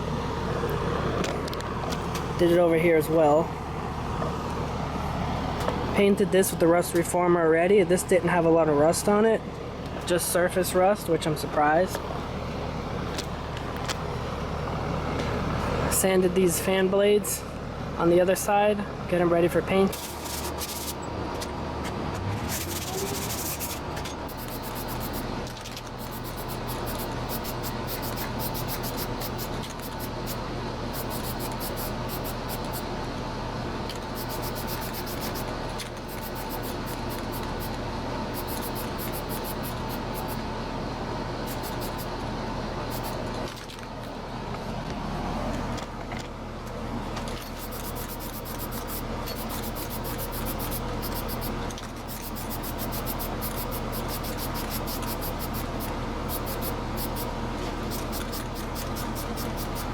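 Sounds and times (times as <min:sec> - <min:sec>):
steady background hum: 0:00.0 - 0:59.9
sandpaper rubbing on fan blades: 0:20.0 - 0:21.0, 0:22.4 - 0:32.9, 0:34.0 - 0:40.4, 0:41.4 - 0:42.2, 0:42.9 - 0:43.2, 0:47.5 - 0:59.9.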